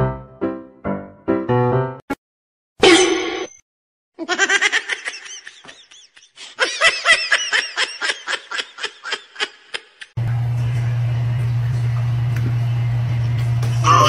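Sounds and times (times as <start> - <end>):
person laughing: 4.2 - 10.2.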